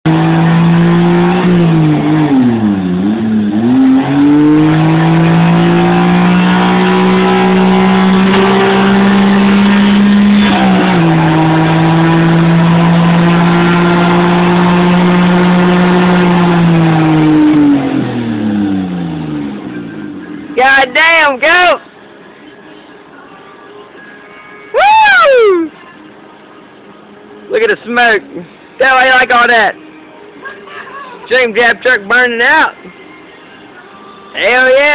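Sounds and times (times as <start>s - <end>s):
truck engine at high revs: 0.0s - 20.8s.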